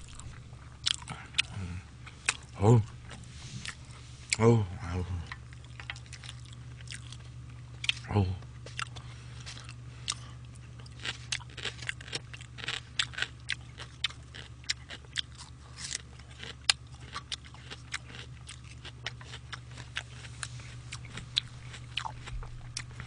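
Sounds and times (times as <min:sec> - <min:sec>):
person chewing food: 0:00.0 - 0:04.5, 0:05.1 - 0:23.0
steady low hum: 0:00.0 - 0:23.0.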